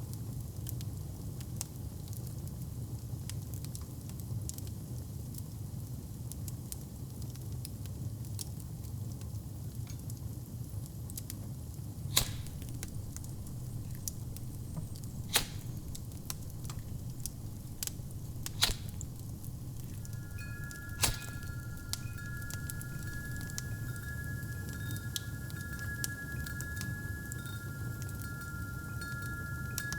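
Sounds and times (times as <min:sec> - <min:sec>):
wood fire crackling: 0:11.9 - 0:29.9
loud fire pops: 0:12.0 - 0:29.9
two-note ringing tone: 0:12.0 - 0:29.9.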